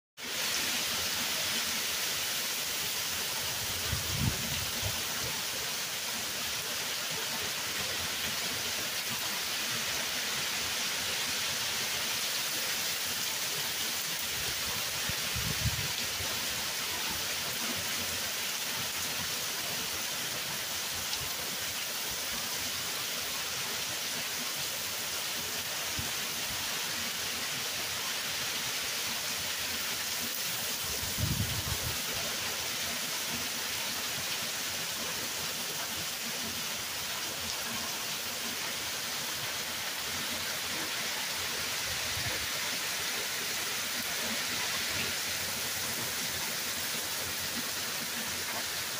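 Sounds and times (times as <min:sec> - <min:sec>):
hard rain pouring: 0:00.2 - 0:48.9.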